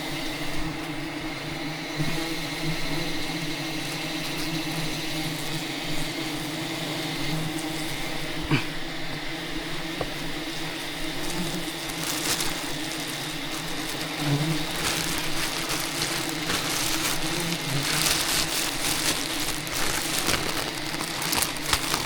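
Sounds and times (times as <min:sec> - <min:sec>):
bees buzzing: 0:06.5 - 0:22.0.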